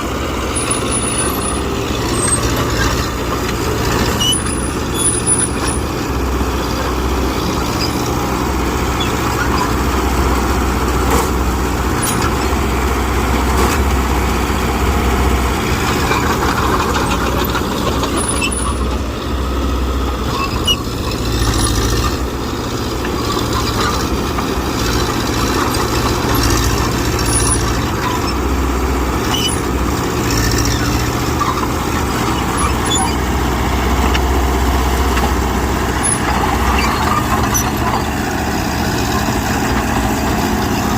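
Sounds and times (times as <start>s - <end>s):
heavy machinery diesel engine: 0.0s - 40.9s.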